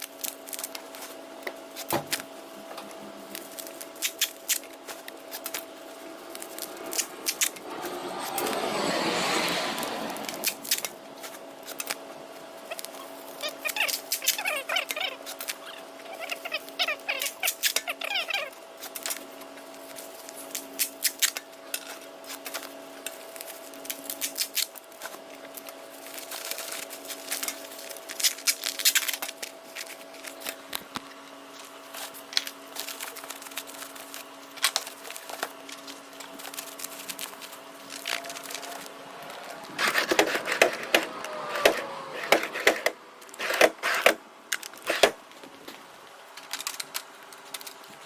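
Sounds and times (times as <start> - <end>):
steady hum: 0.0 - 48.0
clicks and clatter of items handled: 46.4 - 48.0.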